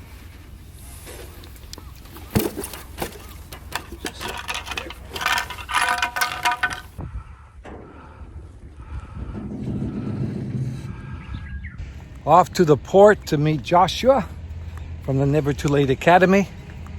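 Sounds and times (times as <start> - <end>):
steady low hum: 0.0 - 16.9
metallic clinking: 2.5 - 7.0
ringing metal tones: 3.4 - 7.0.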